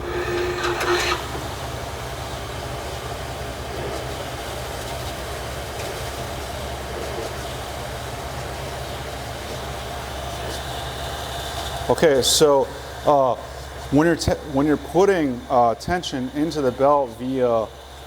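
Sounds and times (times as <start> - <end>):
treadmill belt clatter: 0.0 - 1.6
high motor whine: 0.0 - 4.6
treadmill motor hum: 0.0 - 18.0.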